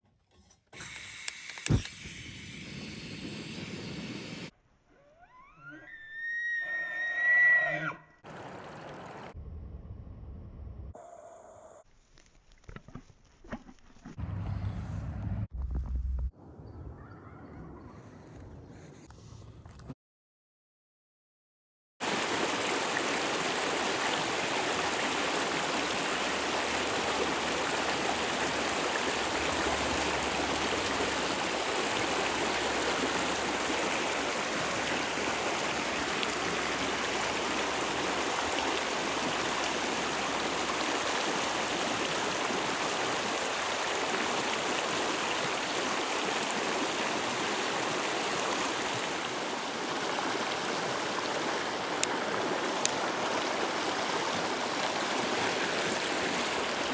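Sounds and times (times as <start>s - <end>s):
stream rushing over rocks: 22.0s - 56.9s.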